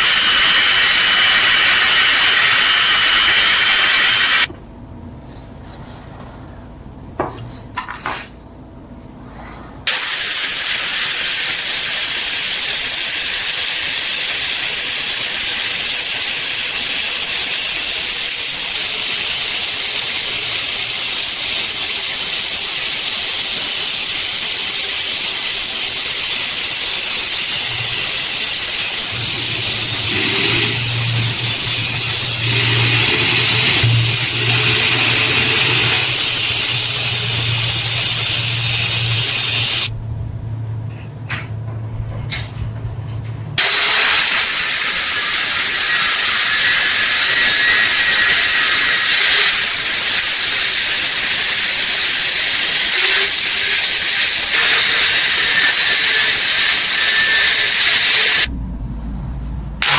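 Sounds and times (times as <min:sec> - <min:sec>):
loud spraying hiss: 0:00.0 - 0:04.5, 0:09.9 - 0:39.9
low steady hum: 0:27.7 - 0:43.6, 0:58.5 - 0:59.9.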